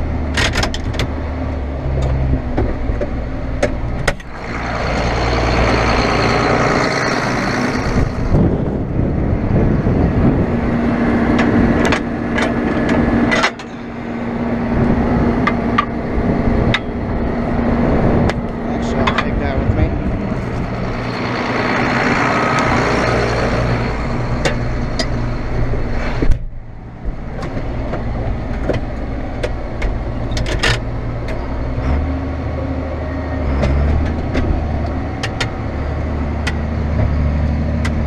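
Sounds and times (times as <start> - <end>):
vehicle engine running: 0.0 - 38.0
sharp clicks and knocks: 0.3 - 1.2, 1.9 - 5.1, 11.3 - 13.8, 15.4 - 16.0, 16.6 - 17.0, 18.2 - 19.5, 24.3 - 25.3, 26.1 - 32.1, 33.5 - 35.6, 36.4 - 38.0.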